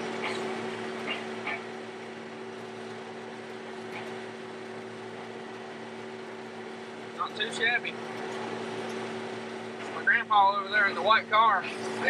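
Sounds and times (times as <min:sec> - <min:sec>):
combine harvester humming: 0:00.0 - 0:12.0.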